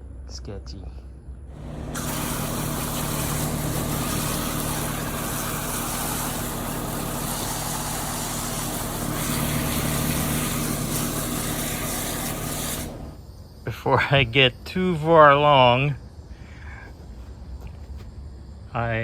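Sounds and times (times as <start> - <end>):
engine idling: 1.5 - 13.2.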